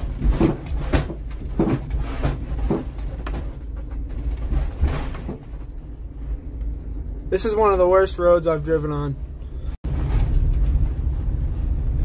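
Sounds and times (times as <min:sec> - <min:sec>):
body clunks and rattles: 0:00.0 - 0:07.2
bus engine and road rumble: 0:00.0 - 0:12.0.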